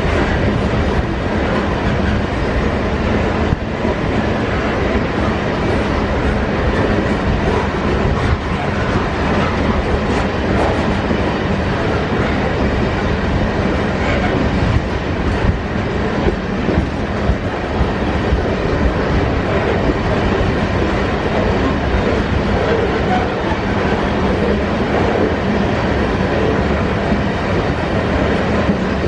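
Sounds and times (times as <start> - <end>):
freight wagons rolling on rails: 13.6 - 29.0.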